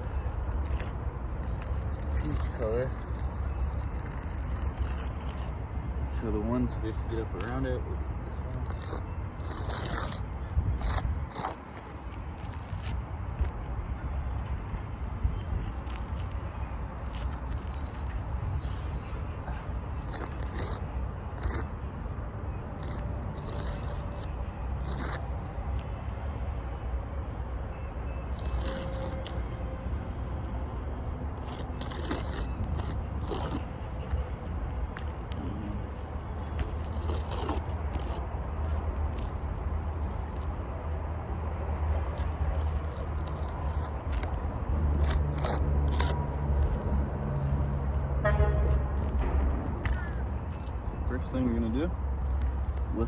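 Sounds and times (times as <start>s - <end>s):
scraping on shingle roof: 0.6s - 5.6s, 8.3s - 13.7s, 19.9s - 21.9s, 22.6s - 26.1s, 28.2s - 29.6s, 31.4s - 40.6s, 42.1s - 47.0s
steady low rumble: 19.3s - 53.0s
tools scraping and tapping shingles: 31.4s - 34.4s, 36.6s - 39.4s, 42.2s - 46.8s
low rumble: 46.3s - 51.2s.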